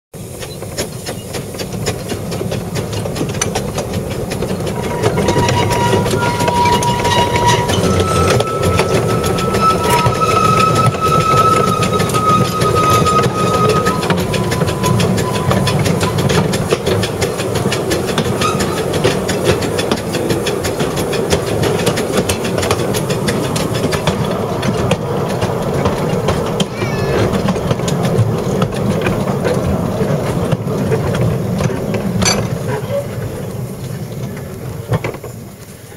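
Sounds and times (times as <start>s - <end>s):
train rail clatter: 0.2s - 35.9s
steady high tones: 4.6s - 16.3s.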